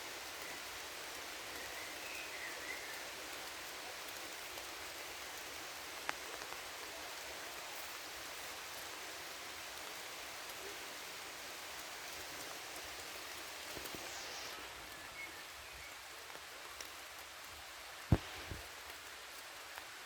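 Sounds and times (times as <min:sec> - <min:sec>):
rain falling in forest: 0:00.0 - 0:20.0
low thump: 0:18.1 - 0:18.6.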